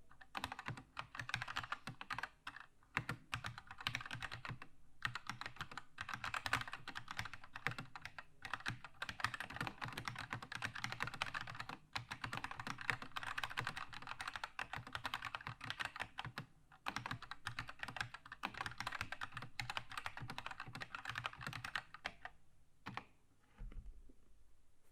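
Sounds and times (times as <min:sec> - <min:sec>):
mechanical keyboard typing: 0:00.2 - 0:23.1.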